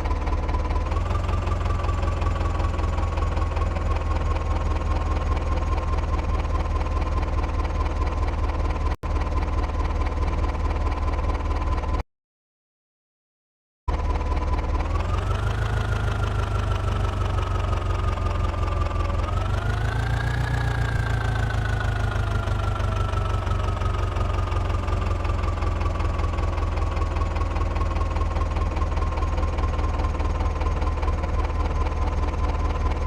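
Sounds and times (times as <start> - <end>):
tractor diesel engine revving: 0.0 - 5.0, 14.2 - 32.9.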